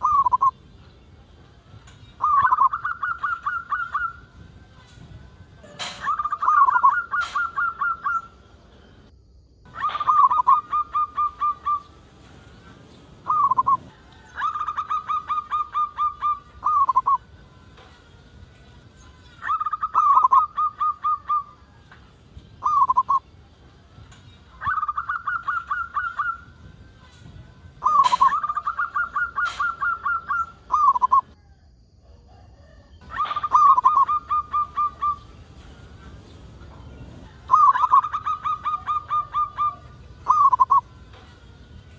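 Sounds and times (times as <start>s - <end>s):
dove cooing: 2.2s - 4.4s, 5.6s - 8.4s, 9.7s - 11.9s, 13.2s - 17.2s, 19.4s - 21.6s, 22.6s - 23.2s, 24.5s - 26.6s, 27.8s - 31.4s, 33.0s - 41.3s.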